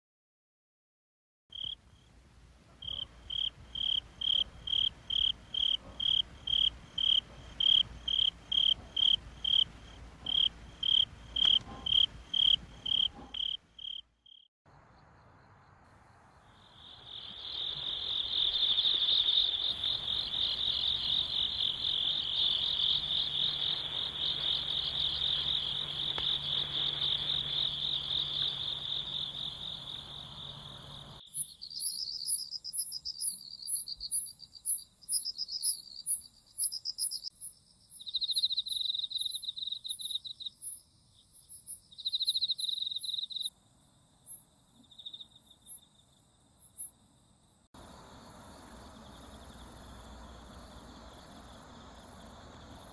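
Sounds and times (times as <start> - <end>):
crickets chirping: 1.5 - 2.1, 2.7 - 52.9
insect pulsing trill: 2.8 - 14.5, 16.4 - 47.0.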